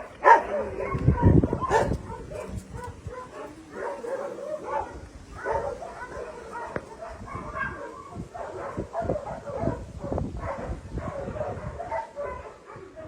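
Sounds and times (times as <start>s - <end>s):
dogs whining and yipping: 0.0s - 9.8s
dog yelp: 0.2s - 9.8s.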